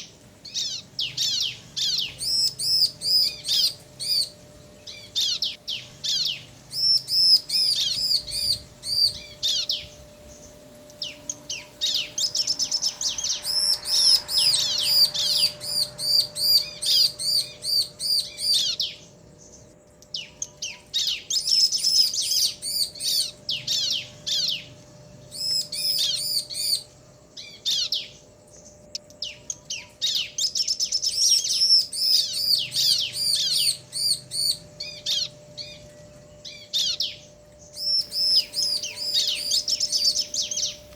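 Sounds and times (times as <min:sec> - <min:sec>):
birds chirping rapidly: 0:00.0 - 0:40.9
faint steady hum: 0:00.0 - 0:40.9.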